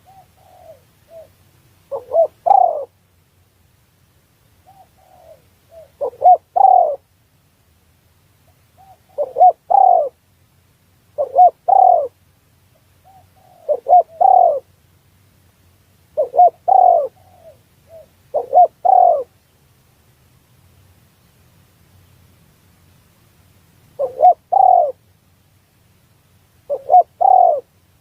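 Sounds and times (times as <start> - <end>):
dove cooing: 0.0 - 3.0, 4.6 - 7.1, 8.7 - 10.2, 11.2 - 12.2, 13.0 - 14.7, 16.1 - 19.4, 24.0 - 25.0, 26.6 - 27.8.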